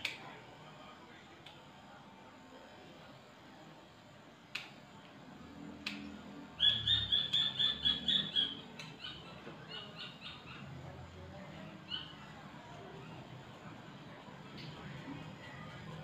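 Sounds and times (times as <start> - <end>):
sharp clicks: 4.5 - 4.8.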